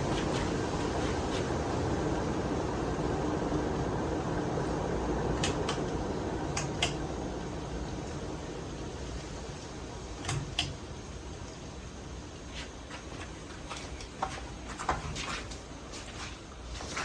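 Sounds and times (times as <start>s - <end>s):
ceiling fan humming: 0.0s - 17.0s
light clicks and taps: 6.6s - 7.0s.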